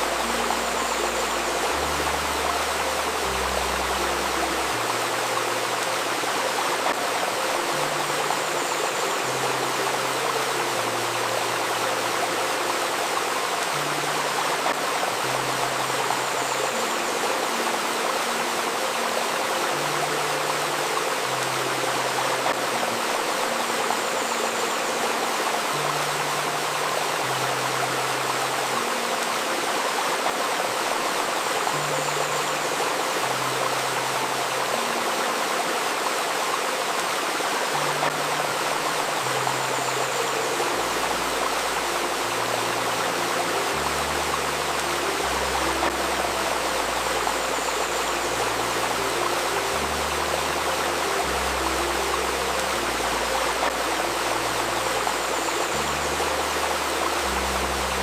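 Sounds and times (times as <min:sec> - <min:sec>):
river stream babbling: 0:00.0 - 0:58.0
soft music of held notes: 0:00.0 - 0:58.0.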